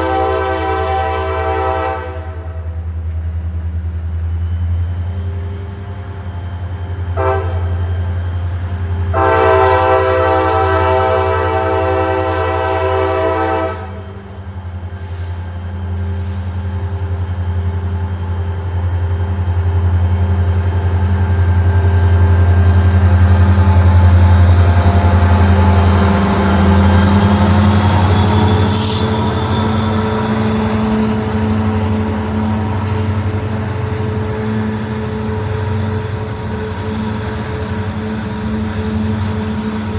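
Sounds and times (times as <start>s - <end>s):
train air horn: 0.0s - 2.8s, 7.2s - 7.8s, 9.0s - 14.2s
locomotive engine rumble: 0.0s - 39.9s
rolling rail noise: 0.0s - 39.9s.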